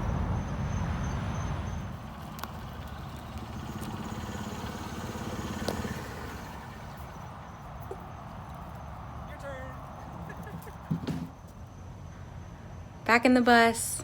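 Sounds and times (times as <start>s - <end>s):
large engine idling: 1.5s - 10.8s.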